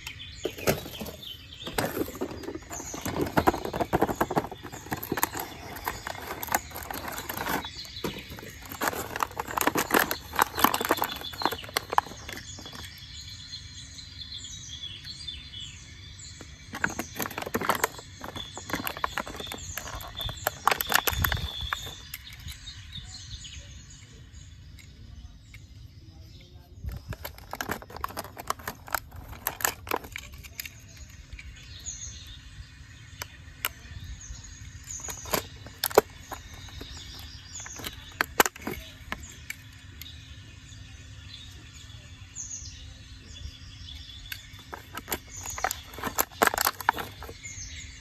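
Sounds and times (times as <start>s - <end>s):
toy cars clicking and rattling: 0.0s - 13.0s, 16.7s - 22.6s, 26.8s - 31.7s, 34.6s - 40.1s, 44.2s - 47.5s
bird chirps: 0.0s - 48.0s.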